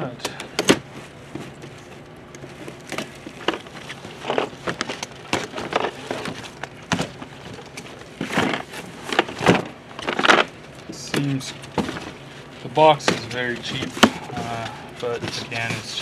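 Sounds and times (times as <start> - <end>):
cardboard packaging rustling and scraping: 0.8 - 16.0.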